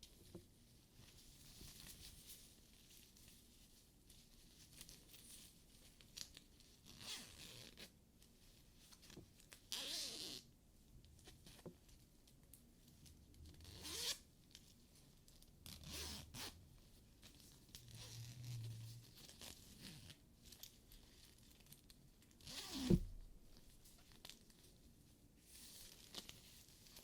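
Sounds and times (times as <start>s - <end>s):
soft thump: 22.9s - 23.3s.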